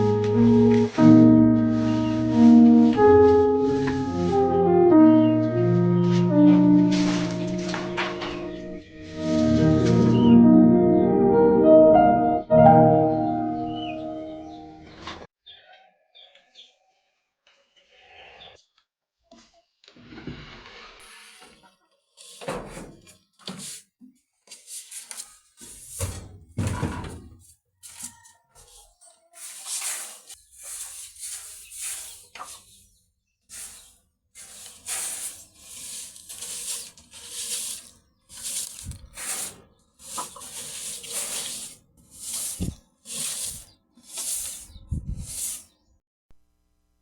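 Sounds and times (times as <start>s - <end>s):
brush scrubbing a bamboo floor: 1.6s - 4.4s, 9.0s - 10.0s, 21.0s - 26.2s, 27.8s - 45.7s.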